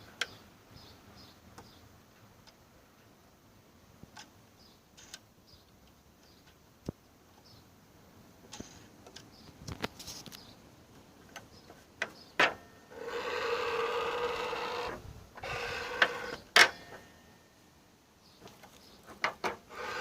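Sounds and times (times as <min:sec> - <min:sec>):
steady mechanical rubbing: 0:19.1 - 0:20.0.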